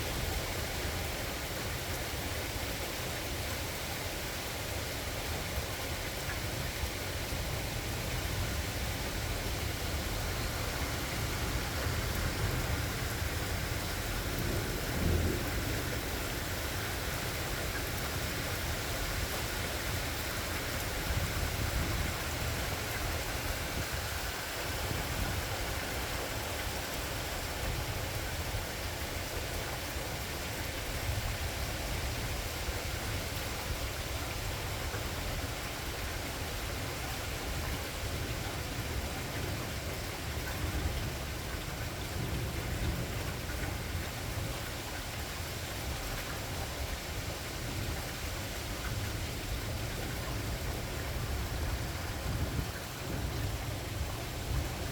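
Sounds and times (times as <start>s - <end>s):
rain hiss: 0.0s - 54.9s
distant thunder rumble: 10.4s - 17.6s.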